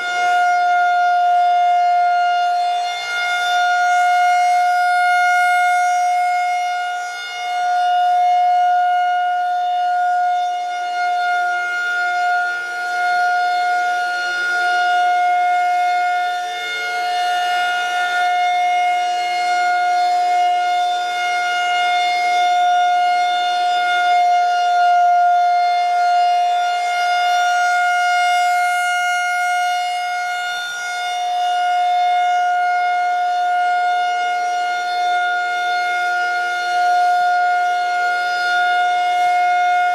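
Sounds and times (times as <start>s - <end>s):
rotating siren wailing: 0.0s - 39.9s.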